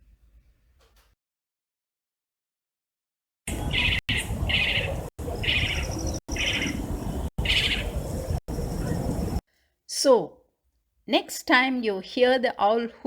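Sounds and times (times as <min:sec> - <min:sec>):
owlet chattering calls: 0:03.6 - 0:06.8, 0:07.4 - 0:07.9.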